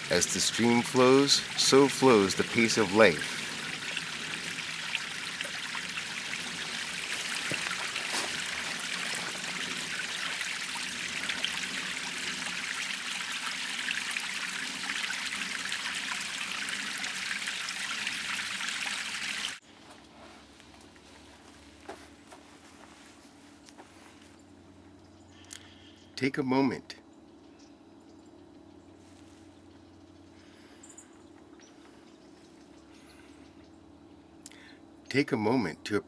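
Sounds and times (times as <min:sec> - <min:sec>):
stream babbling over rocks: 0:00.0 - 0:19.6.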